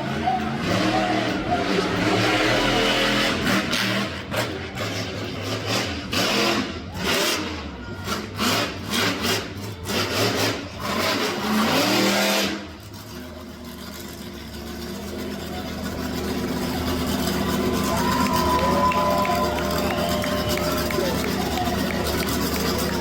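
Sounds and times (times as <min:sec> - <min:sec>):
monster truck engine revving: 0:00.0 - 0:23.0.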